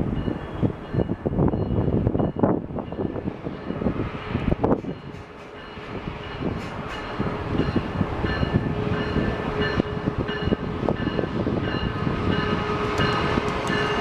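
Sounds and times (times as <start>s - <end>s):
train rumble: 0.0s - 14.0s
locomotive bell ringing: 0.1s - 3.9s, 4.8s - 14.0s
train wheels knocking over track joints: 6.4s - 7.2s.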